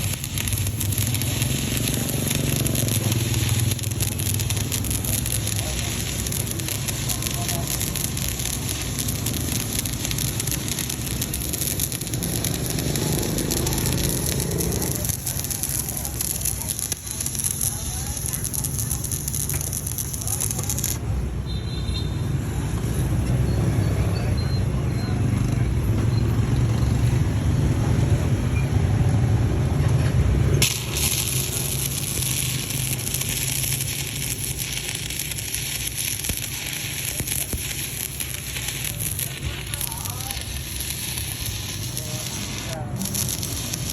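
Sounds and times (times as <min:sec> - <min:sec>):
welding arc crackle: 0:00.0 - 0:21.1, 0:30.3 - 0:43.9.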